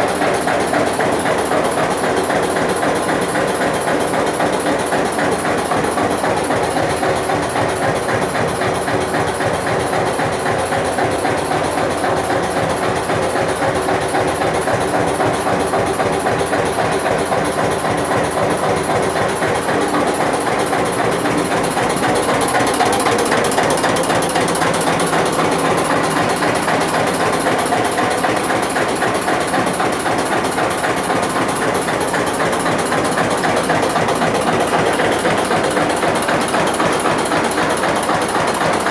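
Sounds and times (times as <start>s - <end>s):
diesel tractor engine knocking: 0.0s - 38.9s.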